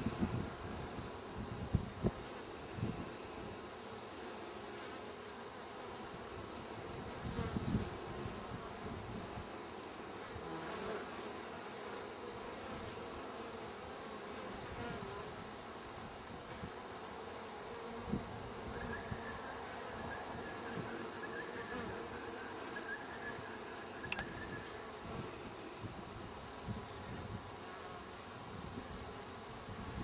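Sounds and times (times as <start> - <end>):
bees buzzing: 9.8 - 30.0
faint steady high tone: 18.7 - 24.9.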